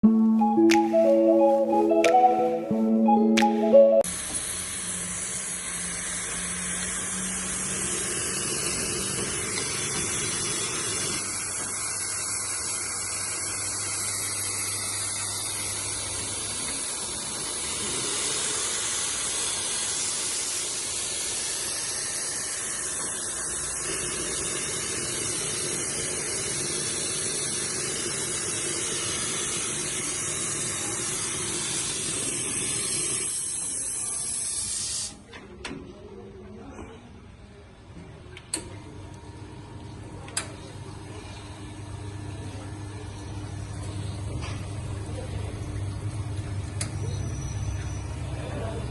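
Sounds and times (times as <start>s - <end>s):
steam wand hissing: 4.1s - 35.2s.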